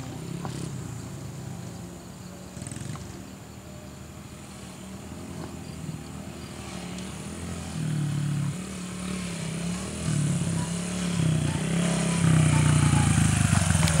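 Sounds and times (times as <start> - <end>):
dirt bike engine revving: 4.2 - 14.0.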